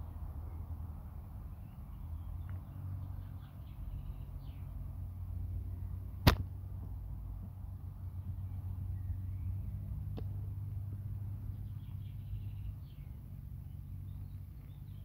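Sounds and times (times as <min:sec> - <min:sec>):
low outdoor rumble: 0:00.0 - 0:15.0
sharp click: 0:06.2 - 0:06.5.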